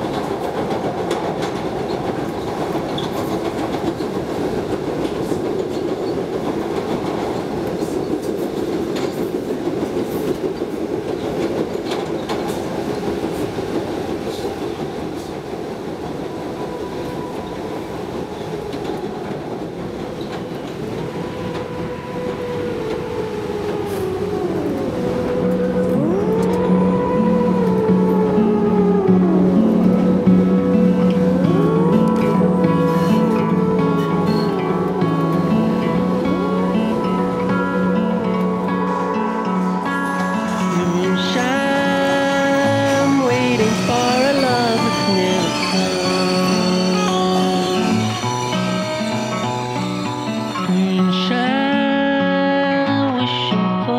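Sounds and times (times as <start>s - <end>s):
subway train rumbling: 0.0s - 53.9s
gliding whines: 20.2s - 51.7s.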